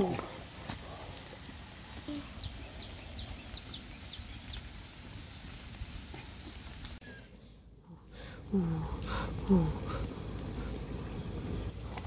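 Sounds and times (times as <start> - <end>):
outdoor hiss with low rumble: 0.0 - 12.0.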